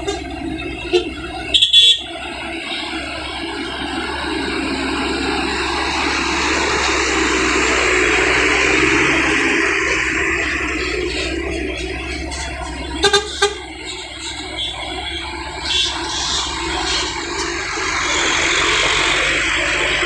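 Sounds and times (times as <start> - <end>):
truck horn blast: 0.0 - 2.8, 12.9 - 16.0
truck engine noise: 0.0 - 20.0.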